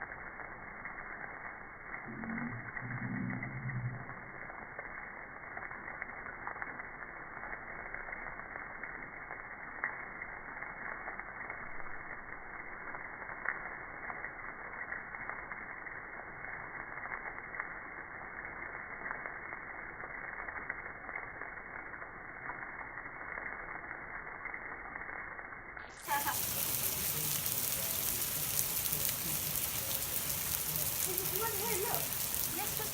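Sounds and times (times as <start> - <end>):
hail falling: 0.0 - 25.3, 25.9 - 32.9.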